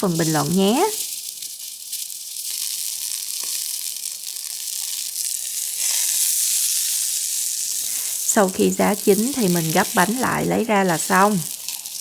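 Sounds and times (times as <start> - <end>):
crepe sizzling in hot oil: 0.0 - 12.0.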